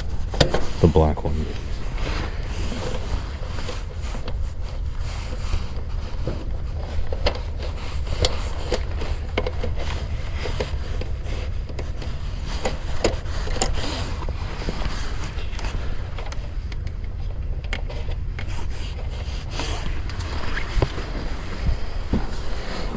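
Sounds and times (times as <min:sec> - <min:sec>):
steady low rumble: 0:00.0 - 0:22.9.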